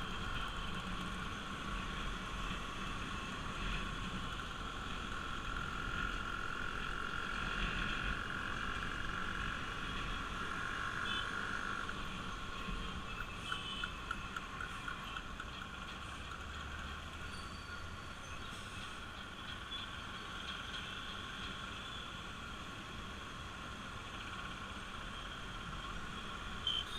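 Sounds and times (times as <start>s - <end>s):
quick evenly spaced ticks: 4.2s - 21.6s.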